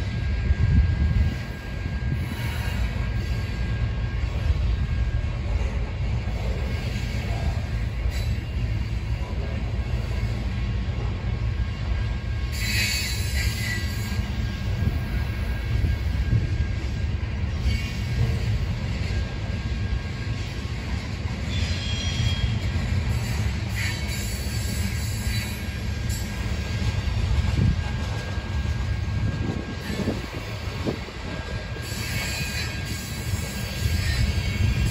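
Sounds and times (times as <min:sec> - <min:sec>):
train rumbling past: 0:00.0 - 0:34.9
high-pitched metallic squeals: 0:06.7 - 0:09.1, 0:12.4 - 0:16.6, 0:17.4 - 0:26.8, 0:31.6 - 0:34.9.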